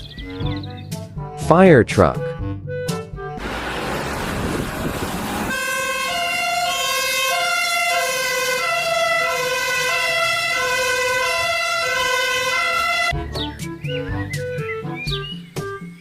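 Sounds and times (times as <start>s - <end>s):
two-tone fire truck siren: 3.4s - 13.2s.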